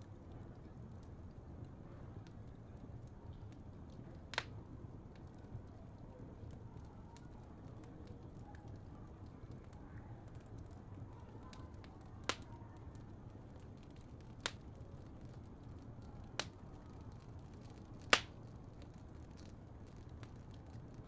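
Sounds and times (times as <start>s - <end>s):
fire rumbling and hissing: 0.0s - 21.0s
sharp crackling pops: 4.2s - 4.6s, 11.5s - 12.5s, 13.7s - 14.8s, 16.3s - 20.9s.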